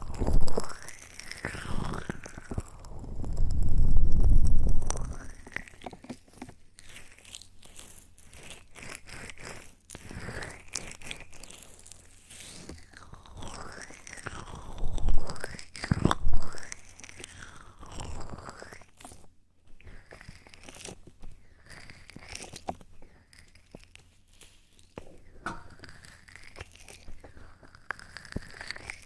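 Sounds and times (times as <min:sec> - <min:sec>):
crackly rubbing and scratching: 0:00.0 - 0:29.0.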